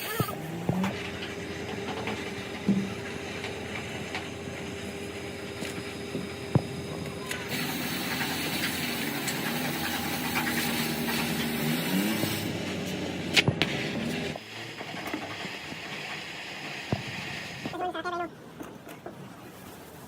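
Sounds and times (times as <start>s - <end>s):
vehicle engine humming: 0.0s - 18.7s.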